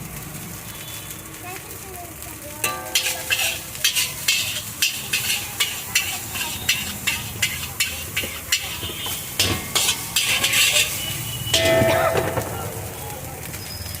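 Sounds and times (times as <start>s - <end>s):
rice sizzling in wok: 0.0s - 14.0s
metal spatula scraping wok: 2.6s - 13.8s.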